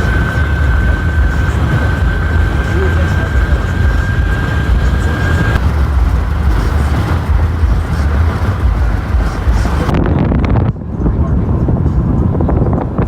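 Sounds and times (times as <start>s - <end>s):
vehicle engine and tyre rumble: 0.0s - 13.0s.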